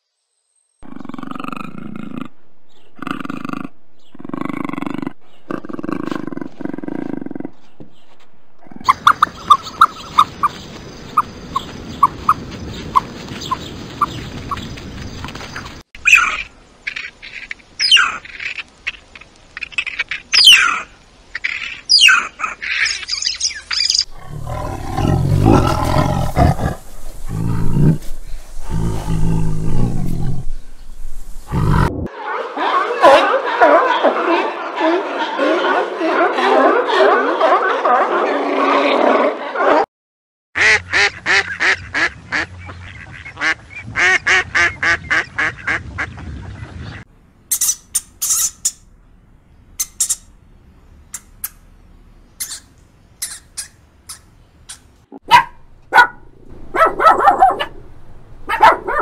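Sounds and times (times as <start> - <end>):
large animal deep calls: 0.8 - 7.7, 24.1 - 30.7
puma snarling: 24.1 - 30.6
meerkats squeaking: 47.5 - 48.8, 49.8 - 50.3, 52.4 - 54.9.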